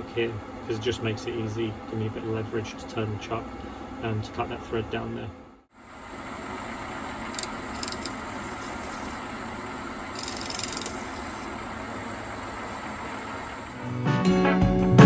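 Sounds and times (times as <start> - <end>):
metal lathe running: 5.8 - 14.0.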